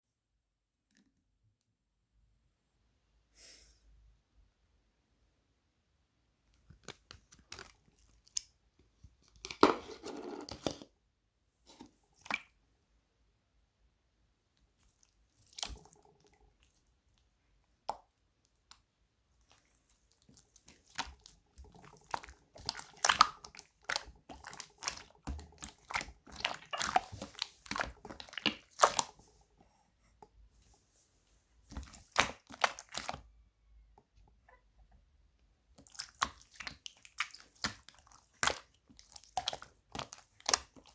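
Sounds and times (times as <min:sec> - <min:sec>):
slime squished by hand: 0:14.8 - 0:29.4, 0:31.6 - 0:33.3, 0:35.7 - 0:40.9.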